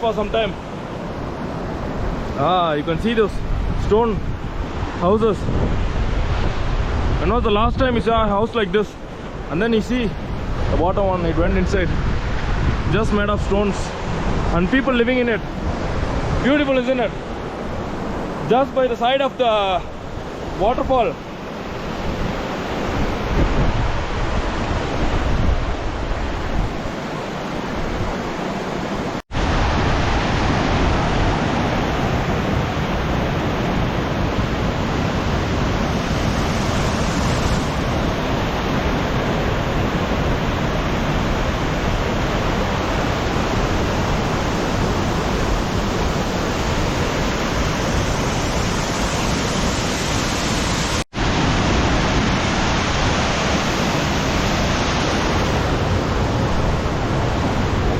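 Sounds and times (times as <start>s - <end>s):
wind buffeting microphone: 0.6s - 8.4s, 10.2s - 14.6s, 21.5s - 28.4s, 29.3s - 57.9s
waterfall rushing: 26.2s - 57.9s.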